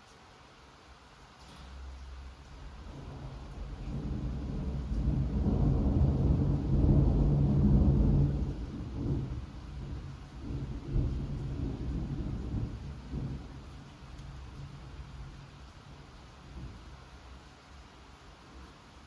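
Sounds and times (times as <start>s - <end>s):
light rain: 0.0s - 19.0s
rolling thunder: 2.6s - 17.0s.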